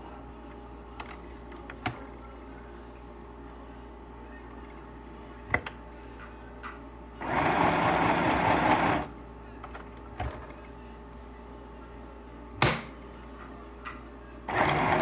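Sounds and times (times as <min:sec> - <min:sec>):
sewing machine stitching: 0:07.2 - 0:09.1, 0:14.5 - 0:15.0.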